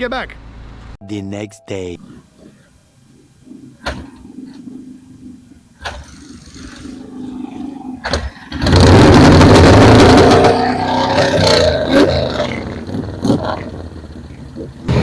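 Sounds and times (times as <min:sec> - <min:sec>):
motorcycle engine running: 0:12.5 - 0:15.0.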